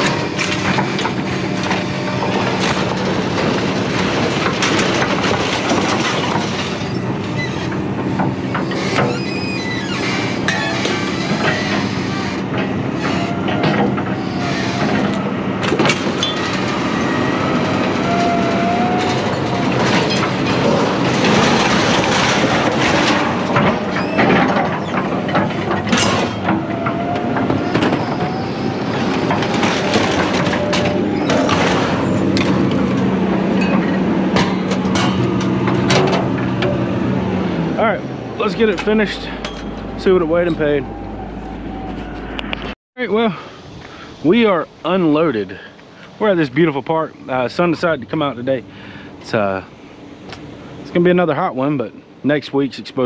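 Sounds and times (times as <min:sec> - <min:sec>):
metal squeals: 0:00.0 - 0:42.8
heavy mechanical rumble: 0:00.0 - 0:53.0
metal clanking: 0:10.4 - 0:41.2.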